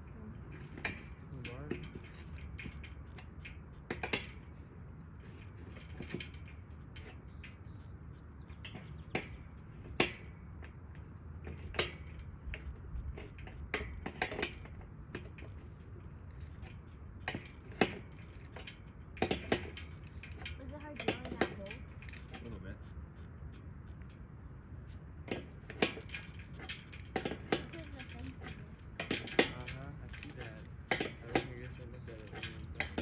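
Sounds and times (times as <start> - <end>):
wind rumble on microphone: 0.0 - 33.0
sharp metallic clinks: 25.8 - 33.0.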